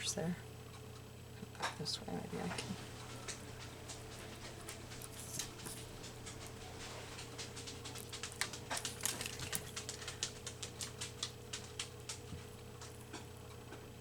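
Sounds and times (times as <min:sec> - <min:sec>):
scissors snipping paper: 0:04.0 - 0:11.0.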